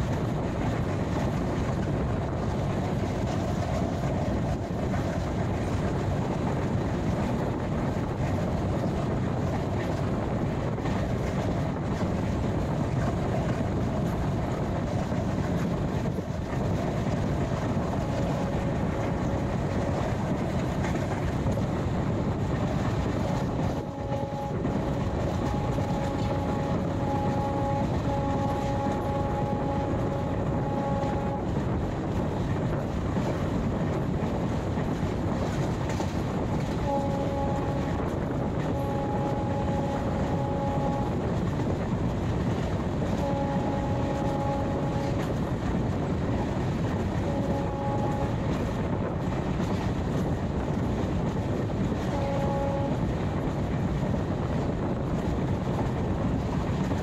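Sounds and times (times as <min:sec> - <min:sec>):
train wheels rumbling: 0:00.0 - 0:57.0
steady tone: 0:17.3 - 0:21.6, 0:22.4 - 0:32.8, 0:36.6 - 0:41.8, 0:42.9 - 0:45.6
higher tones: 0:23.4 - 0:31.5, 0:36.8 - 0:41.2.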